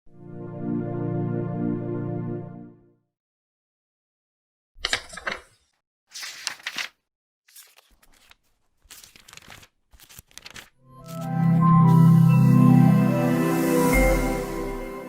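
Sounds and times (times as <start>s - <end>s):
rustling crinkling bursts: 6.1s - 11.3s.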